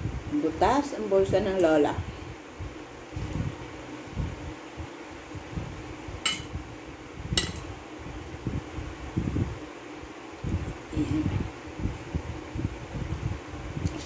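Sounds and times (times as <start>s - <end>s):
fork clinking on ceramic plate: 6.3s - 6.5s, 7.4s - 7.6s.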